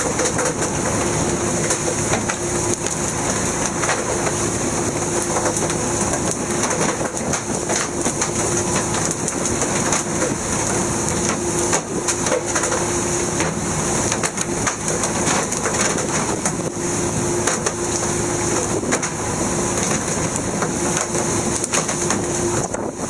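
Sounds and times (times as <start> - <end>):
rushing noise: 0.0 - 6.2
boat mechanical hum: 0.0 - 23.0.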